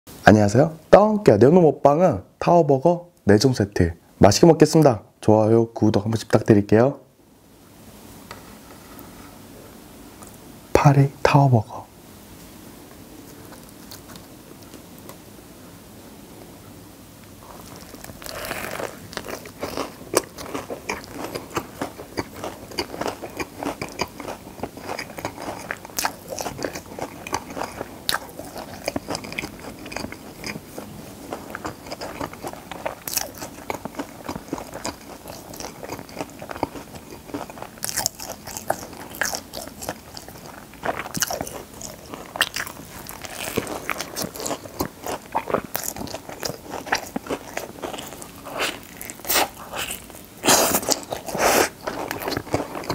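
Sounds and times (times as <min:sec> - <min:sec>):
crunchy biting: 0:13.2 - 0:14.8, 0:17.4 - 0:52.9
chewing: 0:13.2 - 0:15.2, 0:17.4 - 0:52.9.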